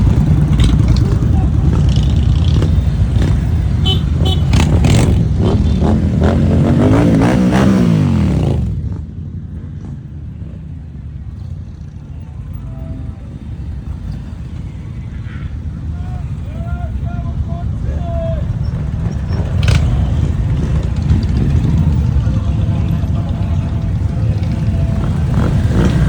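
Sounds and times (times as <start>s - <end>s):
motorcycle engine running: 0.0s - 9.2s, 18.7s - 26.0s.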